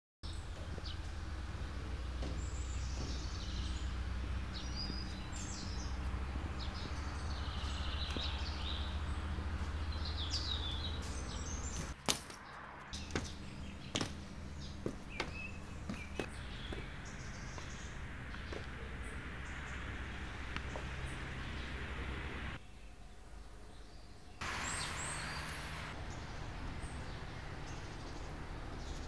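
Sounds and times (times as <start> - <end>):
small birds chirping: 0.3 - 29.0
steady low rumble: 15.8 - 22.6.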